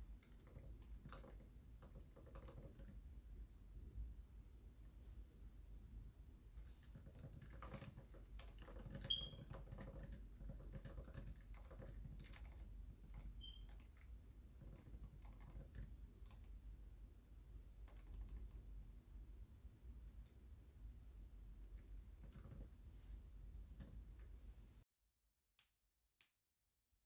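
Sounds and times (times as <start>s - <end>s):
typing on computer keyboard: 0.1s - 3.1s, 6.7s - 16.6s, 17.8s - 18.6s, 22.2s - 22.7s.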